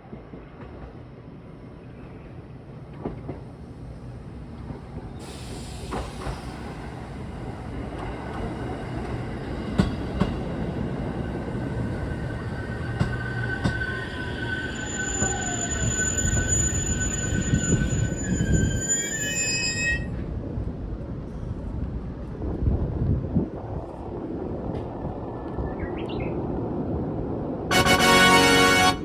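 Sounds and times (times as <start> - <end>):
brakes squealing: 11.2 - 20.1.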